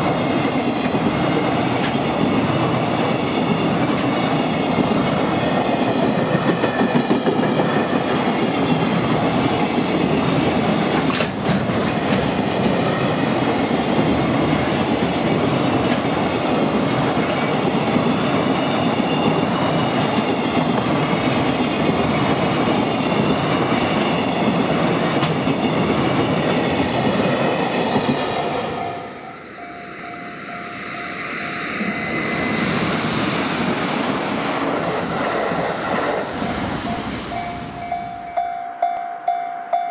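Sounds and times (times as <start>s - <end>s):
freight train wheels clattering: 0.0s - 28.8s
train approaching: 0.0s - 39.9s.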